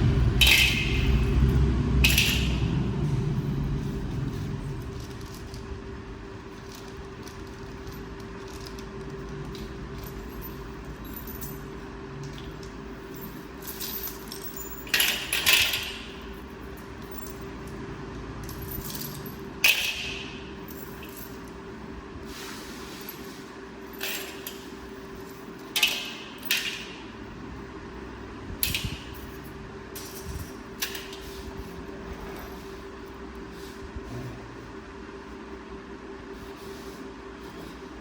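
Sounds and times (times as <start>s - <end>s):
steady low hum: 0.0s - 38.0s
metal clinking and jangling: 0.4s - 5.6s, 6.5s - 17.8s, 18.4s - 21.6s, 23.0s - 26.9s.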